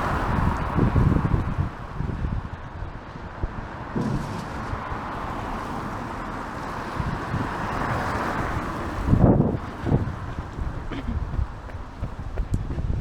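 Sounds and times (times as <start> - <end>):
wind rumble on microphone: 0.0 - 13.0
tyre hiss on wet road: 3.8 - 12.4.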